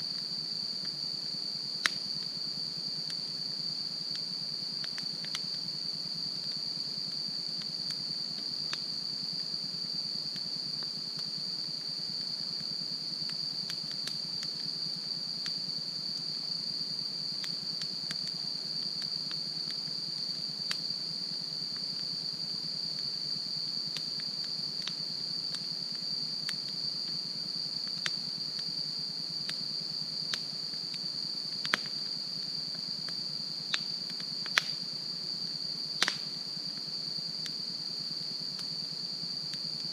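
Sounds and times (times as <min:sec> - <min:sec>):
crickets chirping: 0:00.0 - 0:39.9
campfire crackling and popping: 0:00.2 - 0:02.3, 0:04.0 - 0:05.7, 0:12.2 - 0:16.4, 0:17.3 - 0:20.9, 0:30.3 - 0:32.0, 0:33.0 - 0:34.8, 0:36.0 - 0:36.8.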